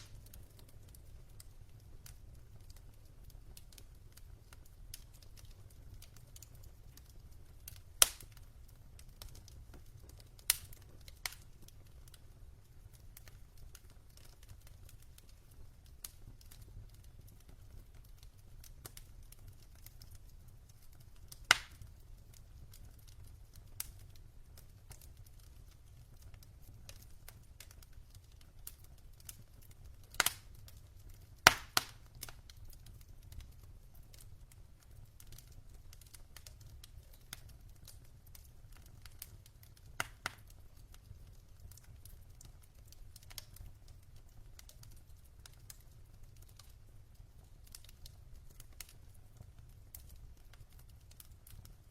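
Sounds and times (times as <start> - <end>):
burning logs crackling: 0.0 - 51.9
loud sharp pops: 31.5 - 32.0.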